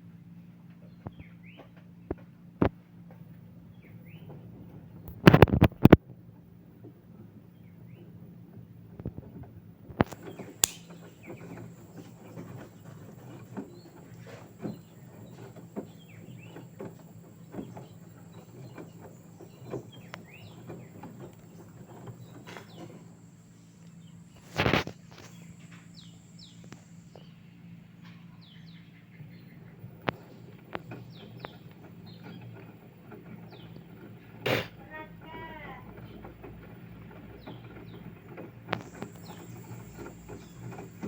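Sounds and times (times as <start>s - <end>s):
birds chirping: 0.4s - 2.4s, 3.2s - 5.6s, 10.0s - 41.0s
sharp clicks: 10.0s - 12.0s
brief loud noise: 34.4s - 34.8s.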